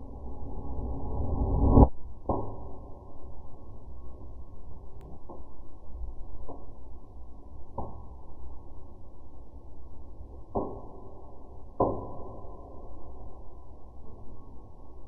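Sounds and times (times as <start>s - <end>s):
low rumble: 0.0s - 2.2s.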